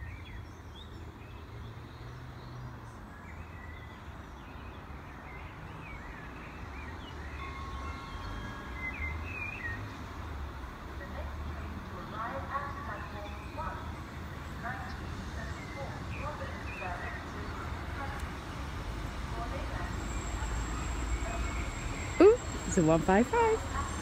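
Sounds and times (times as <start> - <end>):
distant diesel train rumble: 7.2 - 24.0.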